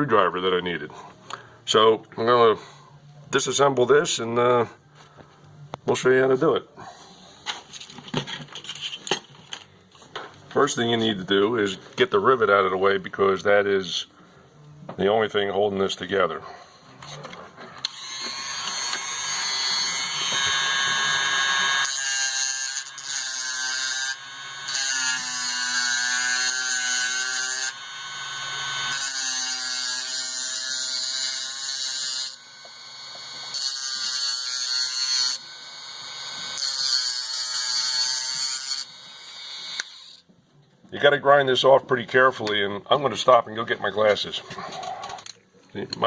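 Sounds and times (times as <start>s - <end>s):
electric grinder whining: 17.8s - 40.2s.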